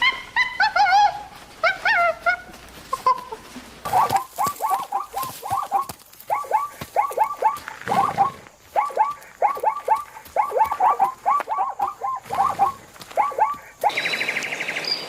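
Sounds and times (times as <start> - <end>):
animal squeaky calls: 0.0 - 15.0.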